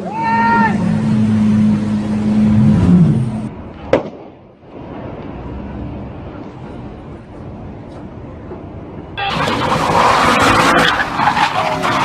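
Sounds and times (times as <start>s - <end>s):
road and traffic noise: 0.0s - 12.0s
engine revving up and down: 0.6s - 3.6s, 9.3s - 12.0s
sharp crack: 3.8s - 5.3s.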